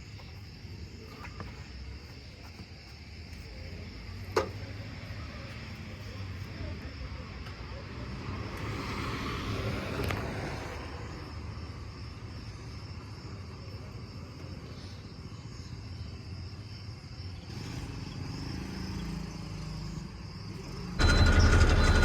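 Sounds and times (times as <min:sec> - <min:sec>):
vehicle engine running: 0:21.0 - 0:22.0.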